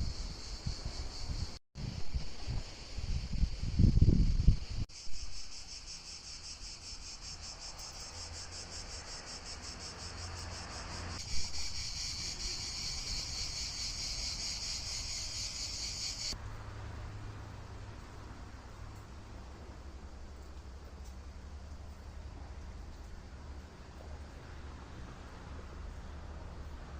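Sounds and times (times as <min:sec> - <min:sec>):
insects chirping: 0:00.0 - 0:16.4.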